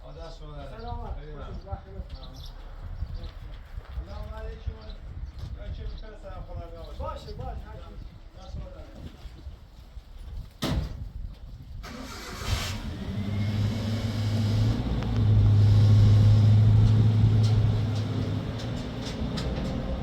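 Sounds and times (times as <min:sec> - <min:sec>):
engine starting and running: 0:11.8 - 0:20.0.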